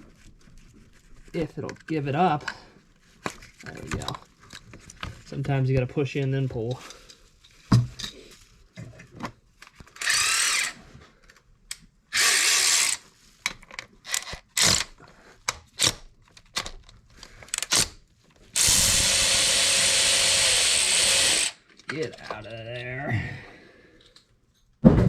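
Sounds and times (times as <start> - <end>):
cordless power tool spinning: 10.0 - 10.8, 12.1 - 13.0, 18.6 - 21.6.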